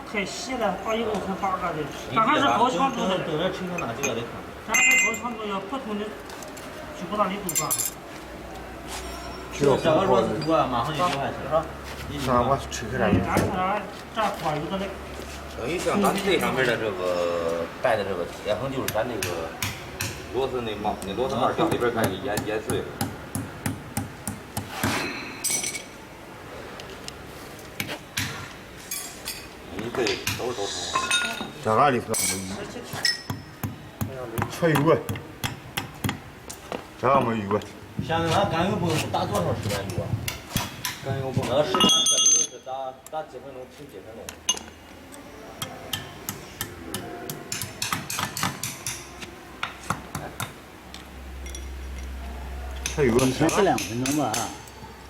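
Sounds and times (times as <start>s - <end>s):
ringing metallic clink: 3.8s - 5.4s, 25.1s - 25.9s, 41.8s - 42.7s
tools knocking on steel parts: 45.9s - 50.6s, 52.8s - 54.7s.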